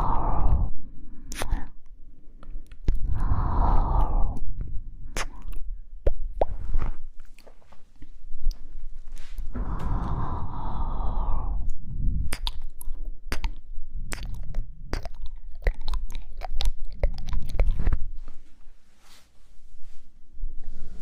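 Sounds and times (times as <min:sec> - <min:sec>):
low rumble: 0:00.0 - 0:07.2, 0:08.2 - 0:18.4
wet tongue and lip clicks: 0:01.3 - 0:01.8, 0:02.4 - 0:03.2, 0:05.1 - 0:06.6, 0:07.2 - 0:08.7, 0:11.6 - 0:18.1.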